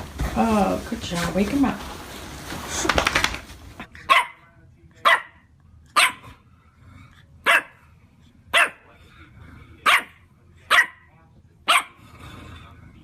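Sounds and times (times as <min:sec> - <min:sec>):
dog barking: 0:04.0 - 0:04.4, 0:05.0 - 0:06.4, 0:07.4 - 0:07.8, 0:08.5 - 0:08.9, 0:09.8 - 0:11.1, 0:11.7 - 0:12.0.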